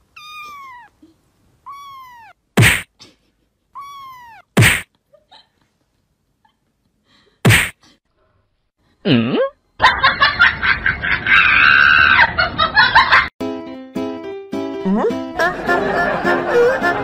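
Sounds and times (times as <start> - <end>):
cartoon slap sound effect: 2.6 - 2.9, 4.6 - 4.9, 7.4 - 7.8.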